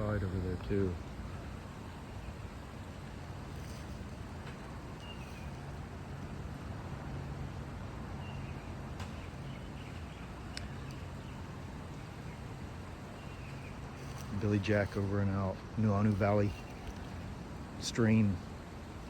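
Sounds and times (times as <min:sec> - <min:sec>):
low outdoor rumble: 0:00.0 - 0:19.0
bird chirps: 0:04.9 - 0:05.8, 0:08.2 - 0:15.1.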